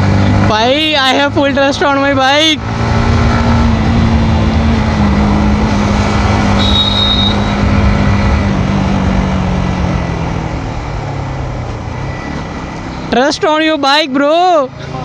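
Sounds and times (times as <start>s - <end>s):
motorcycle engine running: 0.0s - 13.3s
high beep: 6.5s - 7.8s.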